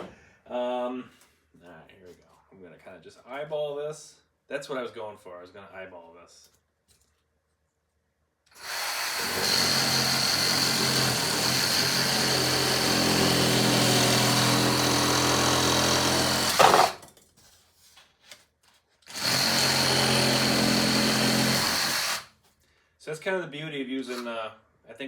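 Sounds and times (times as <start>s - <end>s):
reciprocating saw cutting foam: 8.5s - 17.0s, 19.1s - 22.3s.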